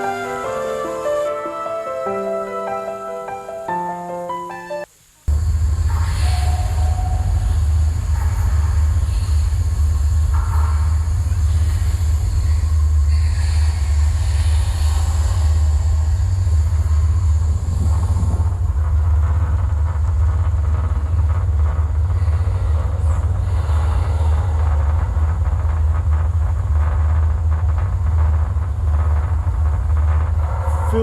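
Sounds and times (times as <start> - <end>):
loud low rumble: 5.3 - 31.0.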